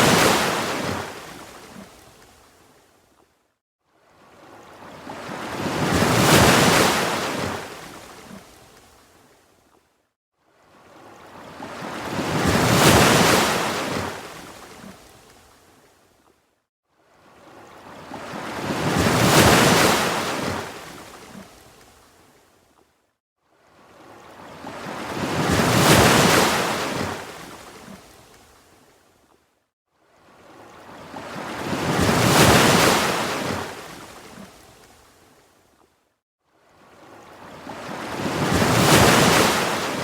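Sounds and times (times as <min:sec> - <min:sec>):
ocean waves breaking: 0:00.0 - 0:02.0, 0:04.3 - 0:08.5, 0:17.4 - 0:21.4, 0:23.9 - 0:28.2, 0:30.4 - 0:34.7, 0:37.0 - 0:40.0.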